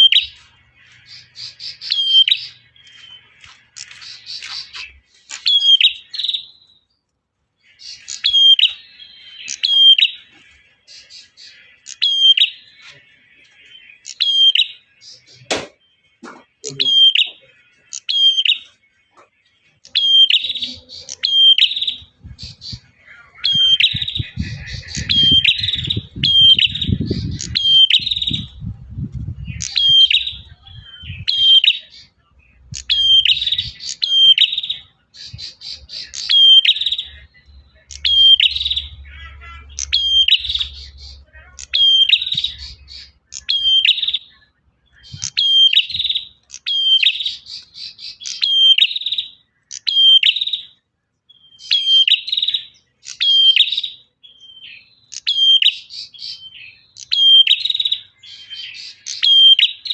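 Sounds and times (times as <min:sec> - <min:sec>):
bird sharp chirps: 0:00.0 - 0:07.0, 0:07.6 - 0:13.0, 0:13.7 - 0:59.9.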